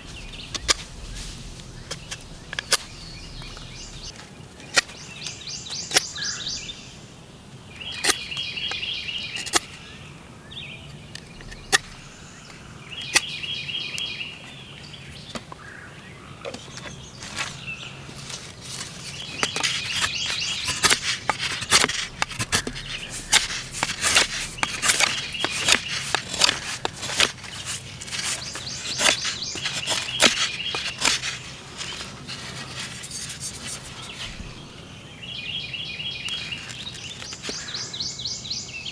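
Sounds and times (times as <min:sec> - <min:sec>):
songbird trilling: 0:00.0 - 0:04.1, 0:04.8 - 0:07.1, 0:19.0 - 0:32.0.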